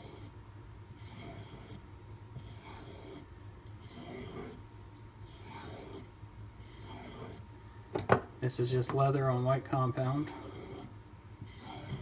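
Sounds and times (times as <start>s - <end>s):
knife stropping on leather: 1.0s - 1.8s, 2.4s - 4.7s, 6.7s - 7.4s, 10.1s - 12.0s.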